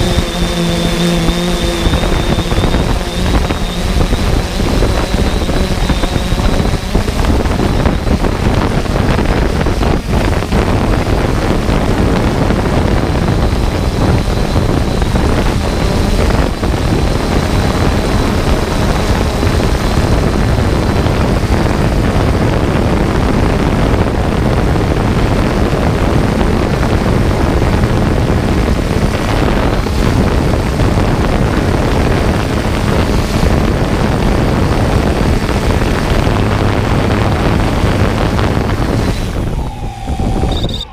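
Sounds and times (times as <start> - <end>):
drone propellers whirring: 0.0 - 40.9
wind rushing on microphone: 0.0 - 40.9.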